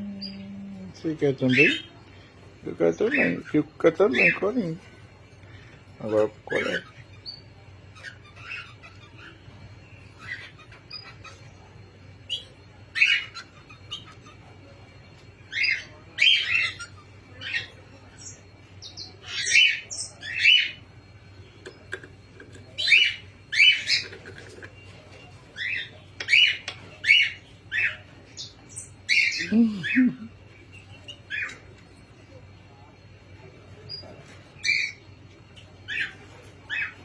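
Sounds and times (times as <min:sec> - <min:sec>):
cockatiels calling: 0:01.4 - 0:01.9, 0:02.9 - 0:04.8, 0:06.0 - 0:11.6, 0:12.3 - 0:14.6, 0:15.5 - 0:20.8, 0:21.6 - 0:30.0, 0:31.0 - 0:31.8, 0:34.6 - 0:35.1, 0:35.8 - 0:37.0.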